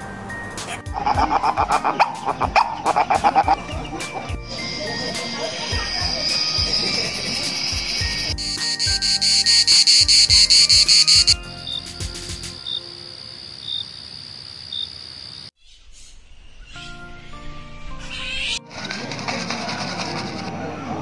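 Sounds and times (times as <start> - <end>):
soft background music: 0.0 - 13.4, 16.6 - 21.0
grasshopper pulsing buzz: 0.9 - 15.4
cricket high trill: 0.9 - 15.5.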